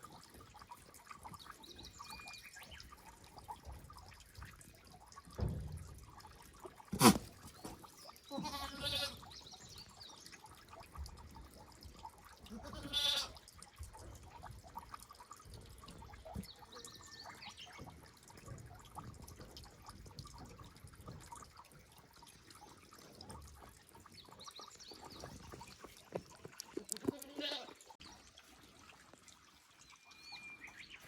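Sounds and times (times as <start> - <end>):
goat bleating: 8.3 - 9.2, 12.5 - 13.4, 26.8 - 27.8.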